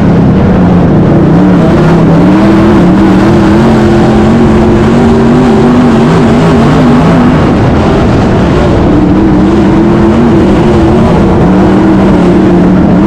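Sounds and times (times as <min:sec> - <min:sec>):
race car engine roaring: 0:00.0 - 0:13.0.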